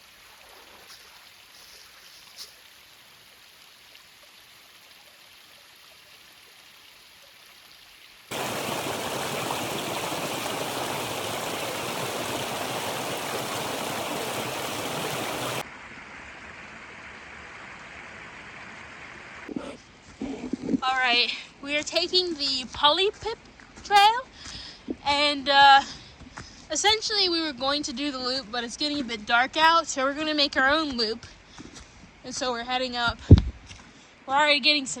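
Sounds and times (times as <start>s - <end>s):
creek water running: 0.0s - 15.6s.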